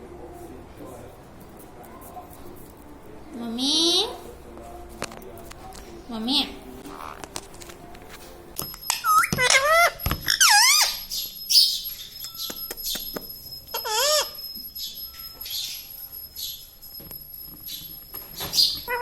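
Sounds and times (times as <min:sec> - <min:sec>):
parrot squawks: 0:08.9 - 0:13.0, 0:13.7 - 0:16.7, 0:17.7 - 0:19.0
soft raspy parrot chatter: 0:08.9 - 0:16.7, 0:17.7 - 0:19.0.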